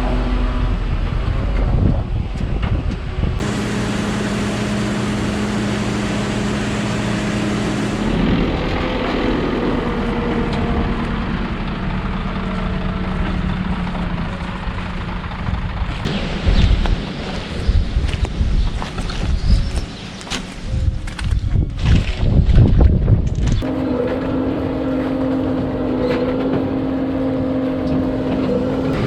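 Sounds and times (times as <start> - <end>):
heavy farm machinery engine: 3.1 - 16.2, 23.6 - 29.0.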